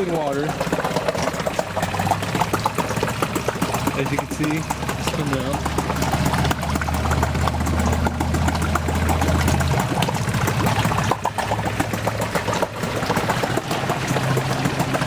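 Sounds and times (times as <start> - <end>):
outboard motor idling: 0.0 - 15.0
man talking: 4.0 - 5.6.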